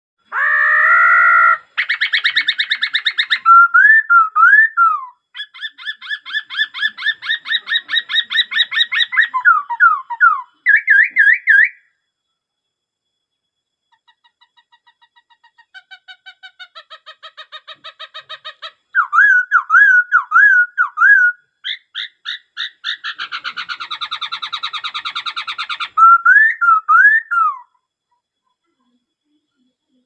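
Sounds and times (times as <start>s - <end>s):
bird singing varied song: 0.4s - 11.9s, 13.9s - 29.0s.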